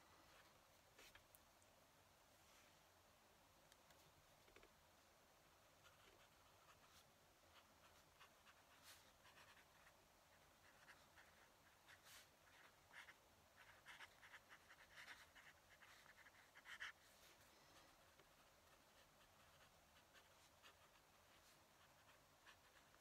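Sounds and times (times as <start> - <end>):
pen nib scratching paper: 5.8 - 23.0.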